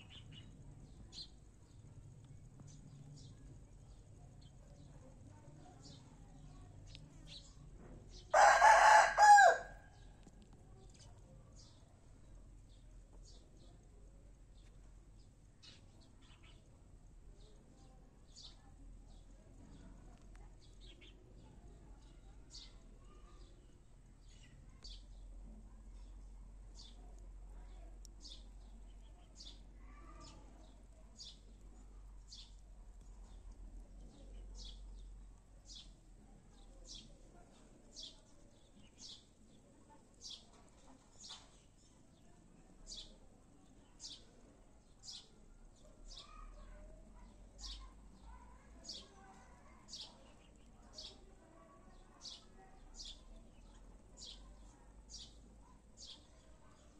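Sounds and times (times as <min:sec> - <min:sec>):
faint bird chirps: 0:00.0 - 0:01.9, 0:14.5 - 0:16.8, 0:17.4 - 0:42.4, 0:44.9 - 0:56.9
low steady background hum: 0:00.0 - 0:56.9.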